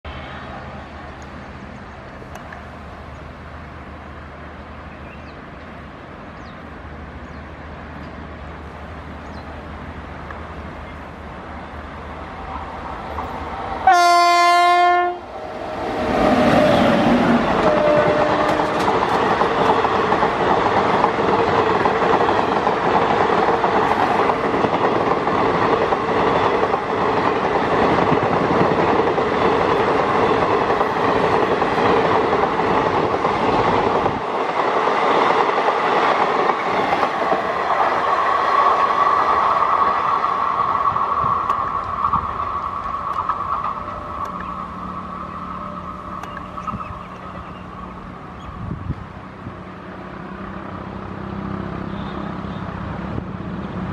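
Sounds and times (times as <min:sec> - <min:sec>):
train passing: 0:00.0 - 0:53.9
locomotive horn blast: 0:13.8 - 0:15.3, 0:17.4 - 0:18.8, 0:51.8 - 0:52.7.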